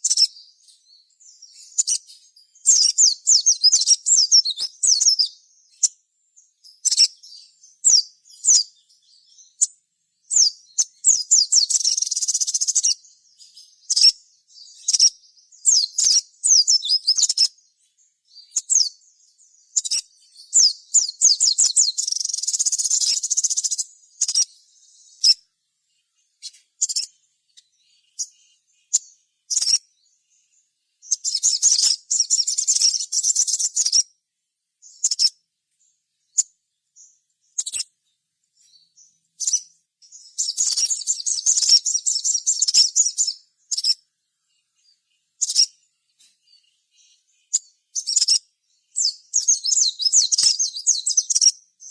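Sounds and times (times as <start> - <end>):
bird chirps and trills: 0.0 - 34.2, 34.8 - 51.9.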